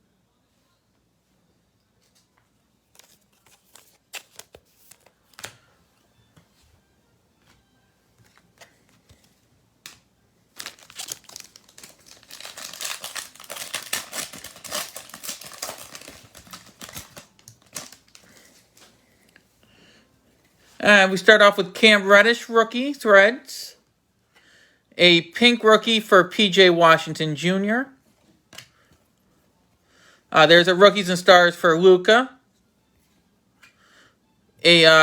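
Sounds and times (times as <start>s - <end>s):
wrapper tearing and crinkling: 2.9s - 5.4s, 10.5s - 18.5s
cards clicking and tapping: 2.9s - 5.7s.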